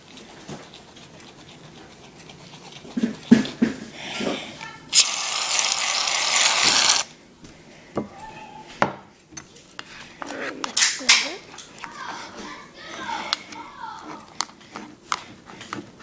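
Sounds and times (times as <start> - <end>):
aerosol can spraying hiss: 5.0 - 7.0.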